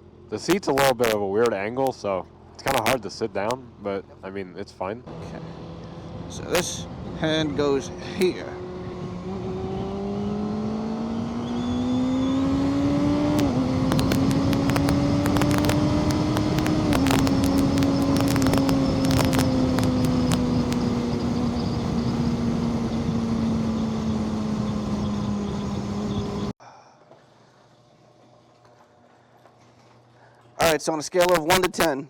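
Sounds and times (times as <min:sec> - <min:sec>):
motorcycle engine accelerating: 0:00.0 - 0:26.6
wind buffeting microphone: 0:12.4 - 0:26.5.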